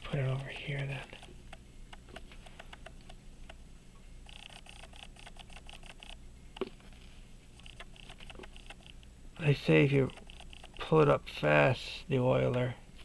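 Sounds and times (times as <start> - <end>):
pocket watch ticking: 0.1 - 1.3, 4.2 - 6.2, 7.6 - 9.0, 9.9 - 11.0.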